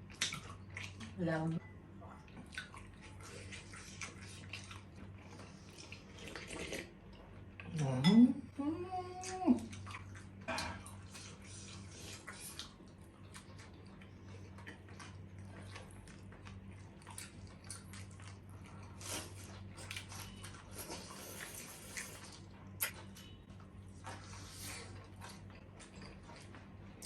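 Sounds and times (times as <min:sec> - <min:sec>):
chewing and biting: 0:02.3 - 0:07.0, 0:09.2 - 0:27.0.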